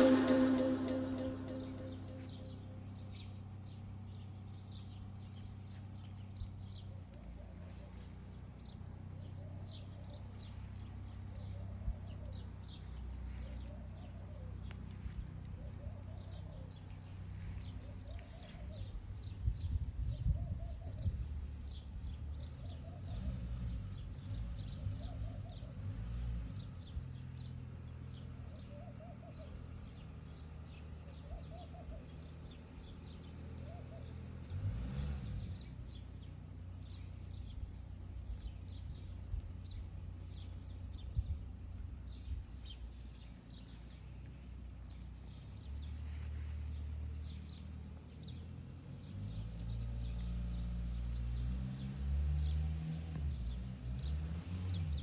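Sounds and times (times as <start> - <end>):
low uneven rumble: 0.0 - 22.9, 35.4 - 51.6
small birds chirping: 1.4 - 34.6, 35.3 - 55.0.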